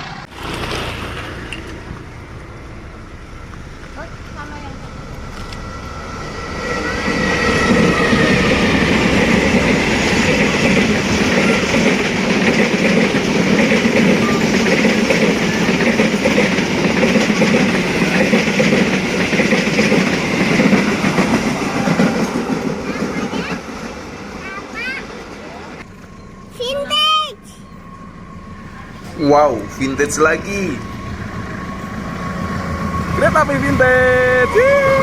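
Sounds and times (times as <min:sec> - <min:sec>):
train wheels clickety-clack: 0:03.4 - 0:26.1.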